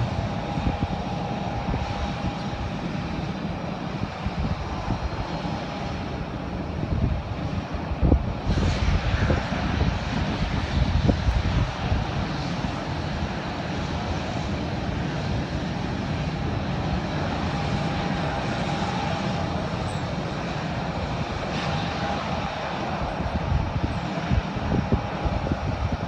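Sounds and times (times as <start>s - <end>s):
airliner engines running: 0.0s - 26.0s
faint high whine: 16.3s - 25.2s.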